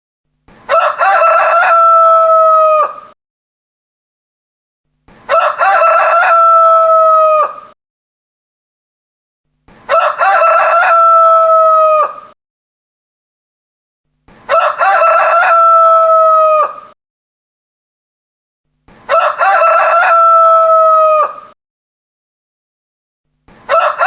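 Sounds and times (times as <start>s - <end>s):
rooster crowing: 0.7s - 3.2s, 5.3s - 7.8s, 9.9s - 12.4s, 14.5s - 17.0s, 19.1s - 21.6s, 23.7s - 24.0s.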